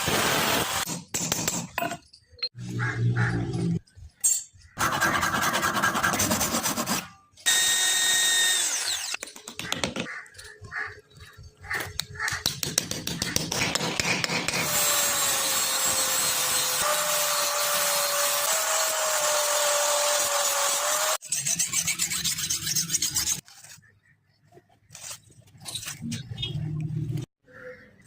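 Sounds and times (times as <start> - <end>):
power tool running: 0.0 - 0.8, 7.4 - 9.2, 14.6 - 21.2
rubbing and rasping strokes: 4.7 - 7.2, 20.2 - 23.9.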